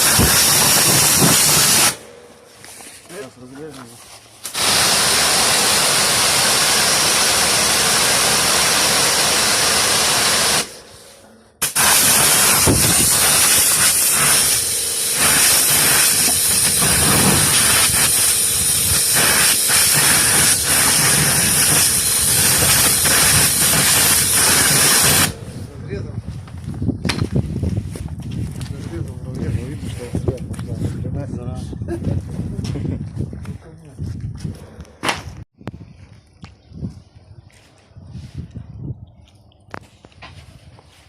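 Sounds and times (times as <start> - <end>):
cutting tool hissing: 0.0 - 2.1, 4.4 - 25.5.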